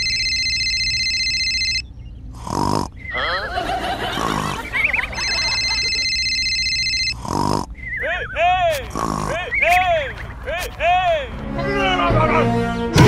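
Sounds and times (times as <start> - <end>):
warbling cartoon effects: 2.9 - 6.6
high electronic tone: 4.2 - 7.2.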